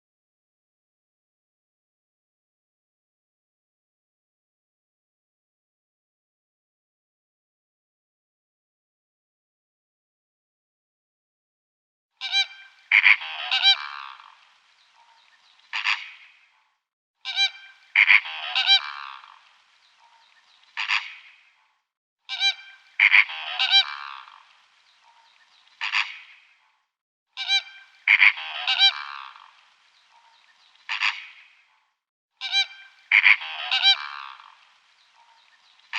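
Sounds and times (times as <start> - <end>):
honking bird calls: 12.2 - 14.3, 15.7 - 16.2, 17.2 - 19.4, 20.7 - 21.3, 22.3 - 24.4, 25.8 - 26.3, 27.4 - 29.5, 30.9 - 31.4, 32.4 - 34.5.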